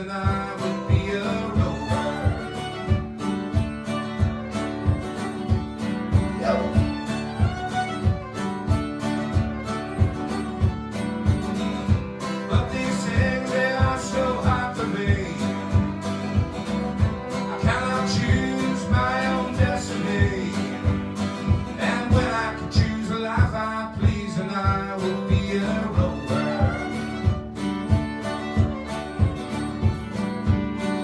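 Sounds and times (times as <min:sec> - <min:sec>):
folk melody line: 0:00.0 - 0:23.3, 0:24.7 - 0:31.0
strummed acoustic guitar: 0:00.0 - 0:31.0.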